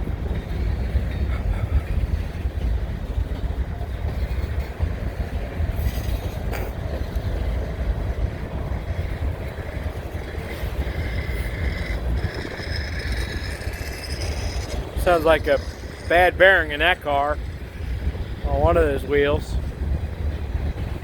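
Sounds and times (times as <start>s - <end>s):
freight train rolling: 0.0s - 21.0s
high wheel squeal: 8.8s - 17.9s.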